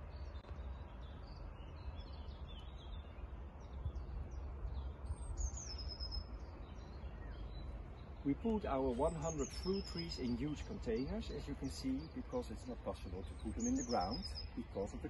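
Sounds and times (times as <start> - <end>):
low outdoor rumble: 0.0 - 15.0
songbirds chirping: 0.0 - 15.0.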